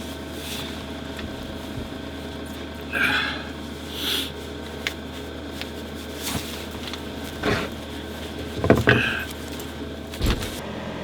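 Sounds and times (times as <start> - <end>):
space heater fan humming: 0.0 - 11.0
handling knocks and rustles: 4.5 - 10.6.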